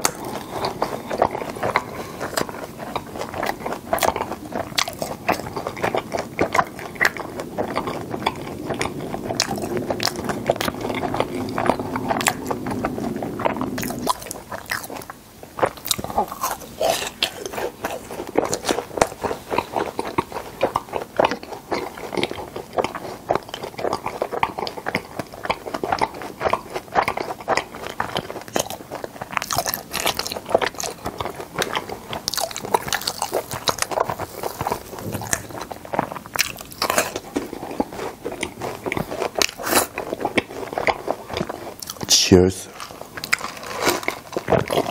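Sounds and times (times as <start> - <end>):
low hum: 0.0 - 15.1, 34.6 - 36.3
crunchy chewing: 0.0 - 44.9
wet mouth sounds: 0.0 - 44.9.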